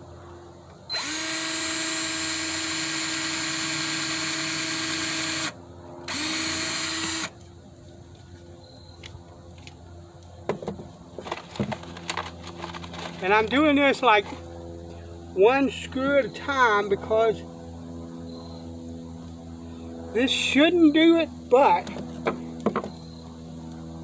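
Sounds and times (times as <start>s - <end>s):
power drill driving screw into wood: 0.9s - 7.3s.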